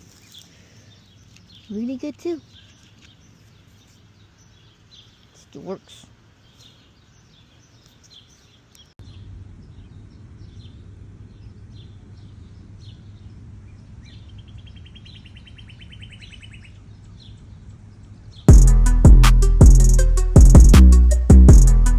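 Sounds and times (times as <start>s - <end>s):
small birds chirping: 0.0s - 18.5s
steady low rumble: 9.0s - 14.1s, 18.5s - 21.9s
loud music with drum beat: 18.5s - 21.9s.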